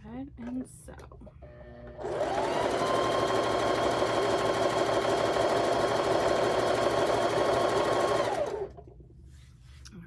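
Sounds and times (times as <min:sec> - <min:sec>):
sewing machine running: 0:01.9 - 0:08.8.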